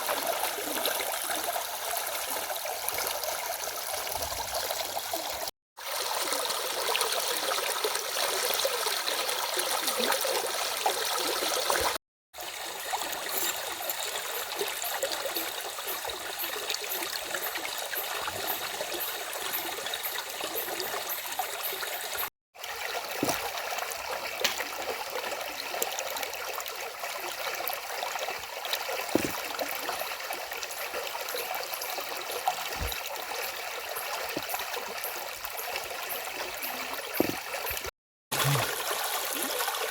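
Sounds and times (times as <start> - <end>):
stream rushing over rocks: 28.8 - 29.8.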